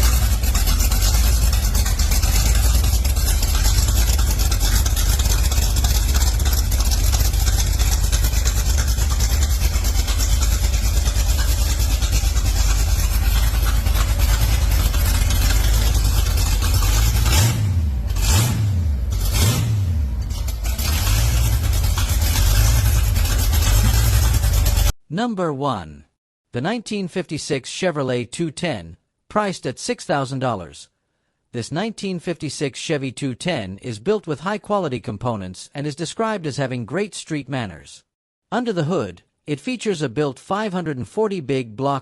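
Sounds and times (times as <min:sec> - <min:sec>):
car engine revving: 0:00.0 - 0:24.9.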